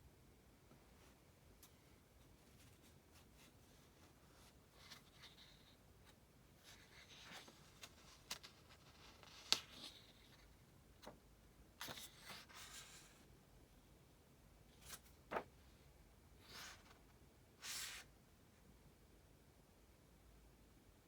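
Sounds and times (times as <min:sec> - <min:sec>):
paper rustling: 0:06.6 - 0:11.2, 0:14.8 - 0:15.5.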